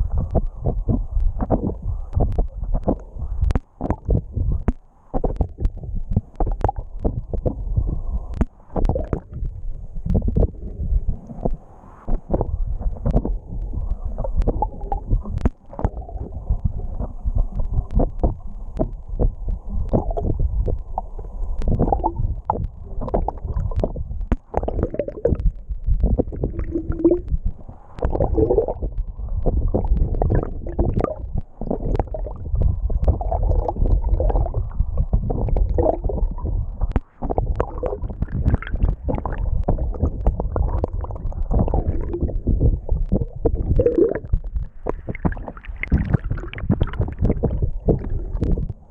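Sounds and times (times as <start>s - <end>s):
underwater water rushing: 0.0s - 48.9s.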